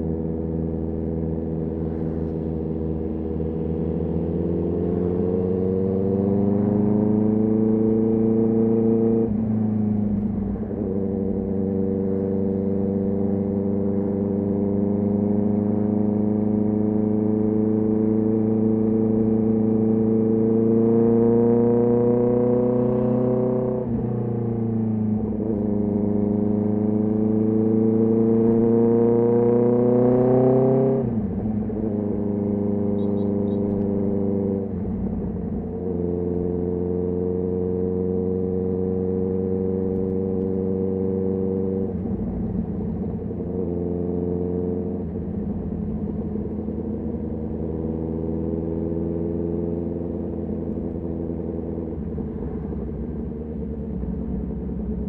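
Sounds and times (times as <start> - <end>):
motorcycle engine revving: 0.0 - 24.0, 25.2 - 55.0.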